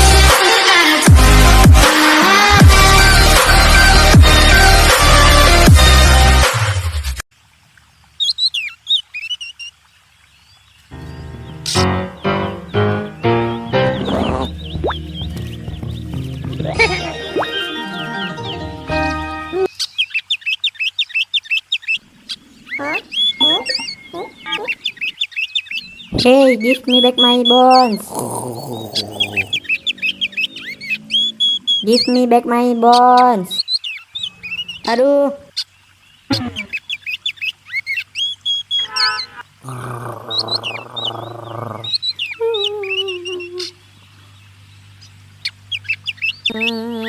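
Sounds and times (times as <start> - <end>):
birds chirping: 0.0 - 6.2, 7.8 - 47.0
background music: 0.0 - 7.2, 11.0 - 19.7
rough animal call: 13.8 - 14.7, 27.3 - 32.1, 38.7 - 42.5.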